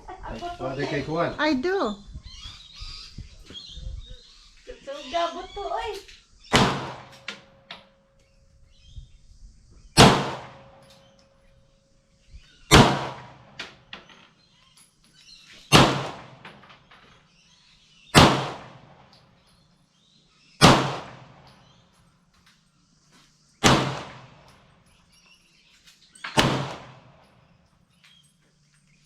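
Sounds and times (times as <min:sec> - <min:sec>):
pistol shots with echo: 0:06.5 - 0:07.5, 0:10.0 - 0:10.8, 0:12.7 - 0:13.6, 0:15.7 - 0:16.5, 0:18.1 - 0:19.0, 0:20.6 - 0:21.5, 0:23.6 - 0:24.4, 0:26.3 - 0:27.2.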